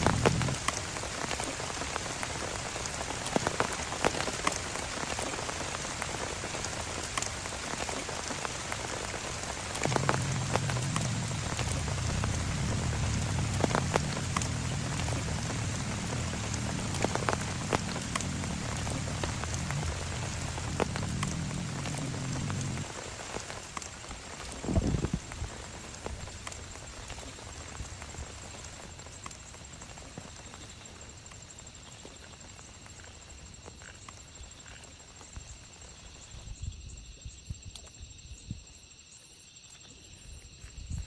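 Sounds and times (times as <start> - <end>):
low rumble: 0.0 - 1.2, 9.3 - 26.1
sharp raindrops striking: 0.0 - 36.2
steady rain: 0.0 - 36.7.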